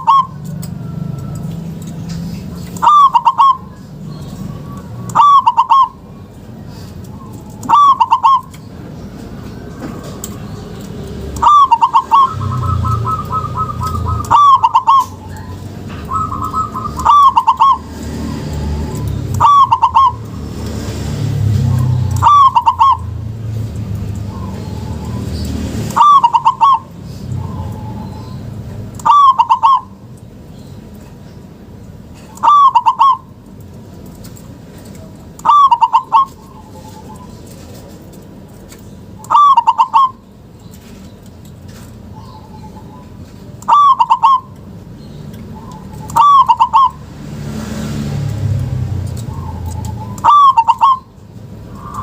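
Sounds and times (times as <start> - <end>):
dove cooing: 0.0 - 1.2, 2.8 - 3.8, 4.6 - 6.0, 7.2 - 8.6, 11.3 - 20.3, 21.7 - 23.3, 25.9 - 28.4, 29.0 - 30.0, 32.3 - 33.3, 35.4 - 37.4, 39.2 - 40.2, 43.7 - 44.6, 45.5 - 47.0, 49.3 - 51.1.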